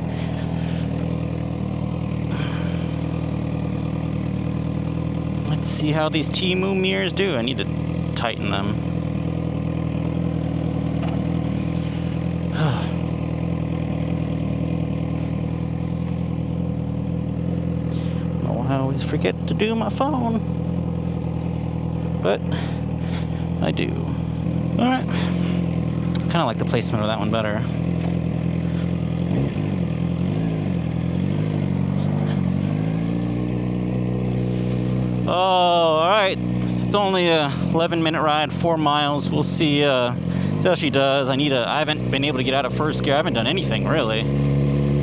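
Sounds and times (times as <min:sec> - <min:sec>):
motorcycle engine idling: 0:00.0 - 0:45.0.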